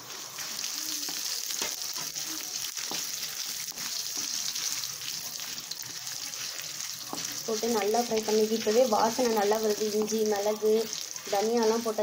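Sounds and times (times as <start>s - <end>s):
spices sizzling in hot oil: 0.0s - 12.0s
spatula scraping and tapping pan: 0.4s - 12.0s.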